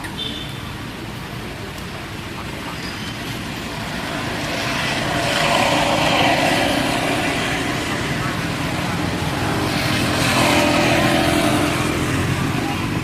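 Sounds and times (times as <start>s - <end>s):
motor vehicle passing: 2.6s - 13.0s.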